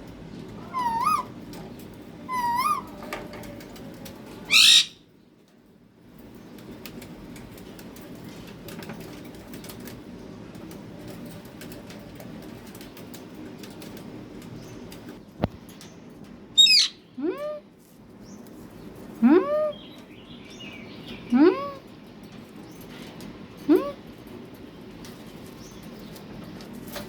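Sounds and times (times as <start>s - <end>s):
parrot screeching: 0.6s - 1.4s, 2.3s - 3.0s, 4.5s - 5.0s, 16.6s - 17.0s
parrot squawks: 0.6s - 1.4s, 2.3s - 3.0s, 4.5s - 5.0s, 16.6s - 17.0s.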